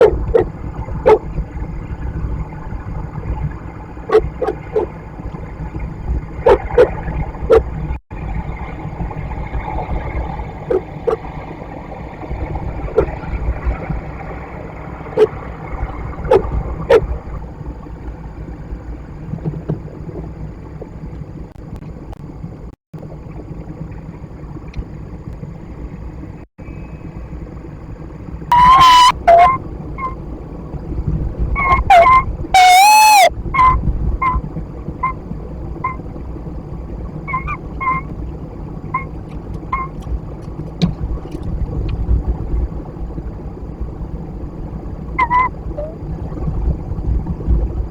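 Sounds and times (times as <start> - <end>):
wind on microphone rumble: 0.0 - 47.9
sharp clicks and knocks: 39.0 - 42.0.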